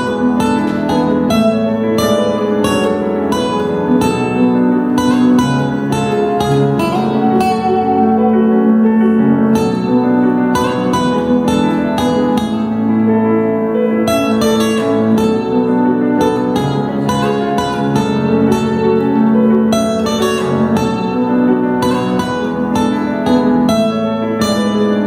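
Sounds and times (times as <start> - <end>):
plucked string instrument music: 0.0 - 25.0.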